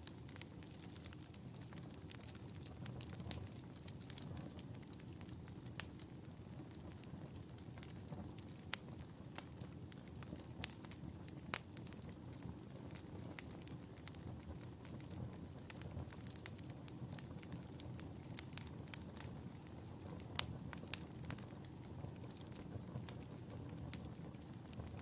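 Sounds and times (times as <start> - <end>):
low rumble of flames: 0.0 - 25.0
wood fire crackling and popping: 0.0 - 25.0.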